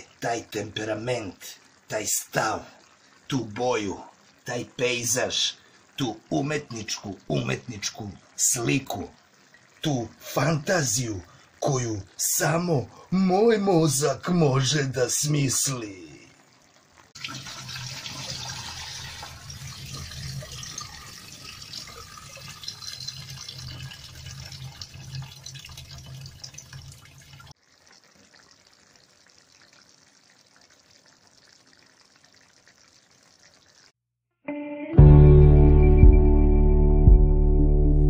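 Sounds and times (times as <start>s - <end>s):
running water hiss: 0.0s - 33.9s.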